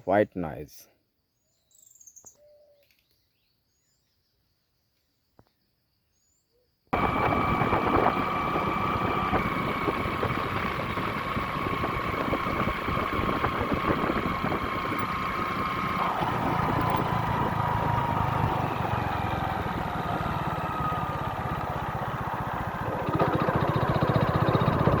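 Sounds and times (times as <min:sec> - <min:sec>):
motor running with a whine: 0:07.0 - 0:25.0.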